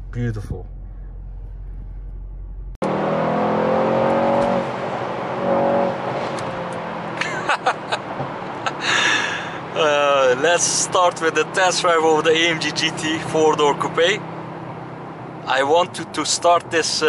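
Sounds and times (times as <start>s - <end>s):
low hum inside car: 0.0s - 3.2s
car engine from inside cabin: 0.0s - 8.8s, 9.6s - 17.0s
tyre and tunnel noise: 0.0s - 17.0s.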